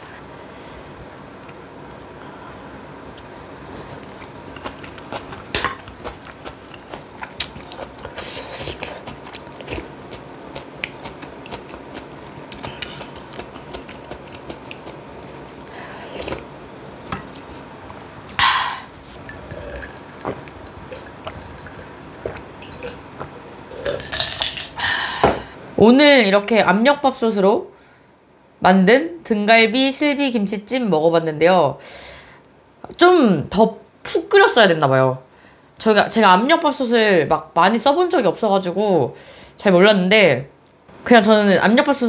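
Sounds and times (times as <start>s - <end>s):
person chewing: 3.1s - 17.6s, 18.3s - 24.2s.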